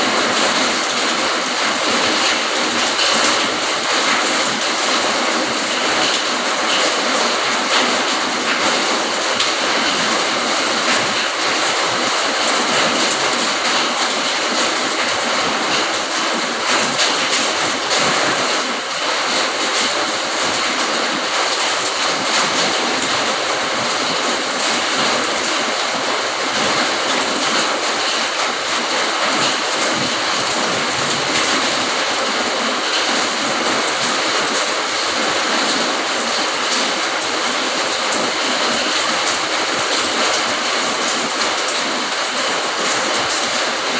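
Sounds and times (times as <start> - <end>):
steady rain falling: 0.0 - 43.9.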